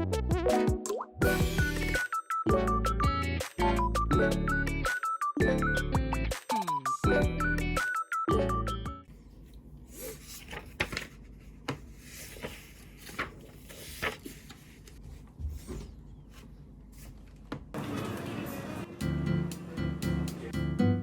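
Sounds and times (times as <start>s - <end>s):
objects tapped and rubbed on desk: 10.8s - 17.7s.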